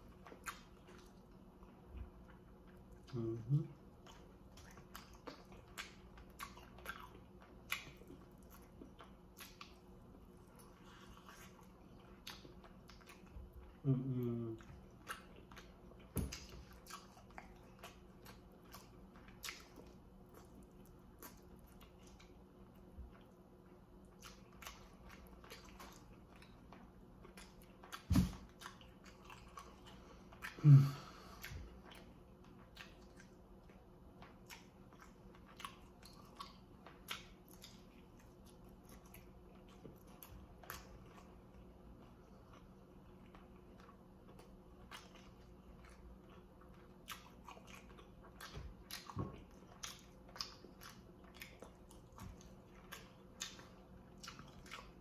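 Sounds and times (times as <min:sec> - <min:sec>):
chewing and wet mouth clicks: 0:00.0 - 0:03.3, 0:03.9 - 0:13.8, 0:14.6 - 0:30.6, 0:31.4 - 0:55.0
person humming: 0:03.1 - 0:03.8, 0:13.8 - 0:14.7, 0:30.6 - 0:31.3.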